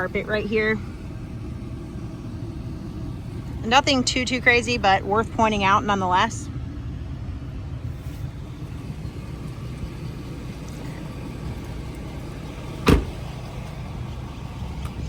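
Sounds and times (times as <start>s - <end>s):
diesel engine idling: 0.0s - 15.0s
sharp thump: 12.8s - 13.2s.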